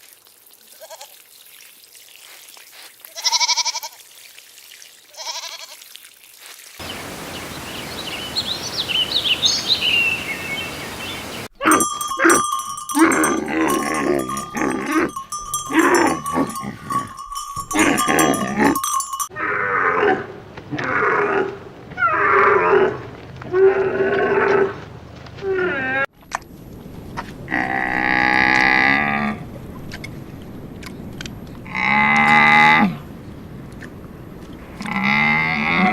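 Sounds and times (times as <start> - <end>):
farm animals calling: 6.8 - 19.3
steady ringing tone: 11.7 - 19.3.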